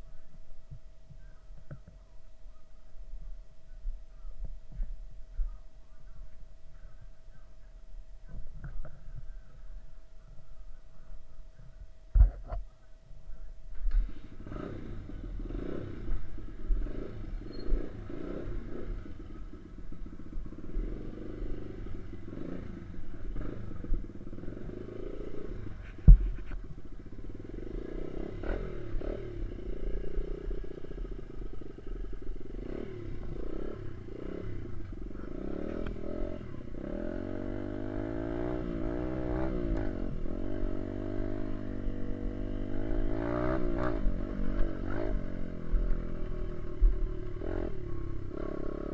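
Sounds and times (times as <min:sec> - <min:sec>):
dirt bike engine revving: 0:13.9 - 0:48.9.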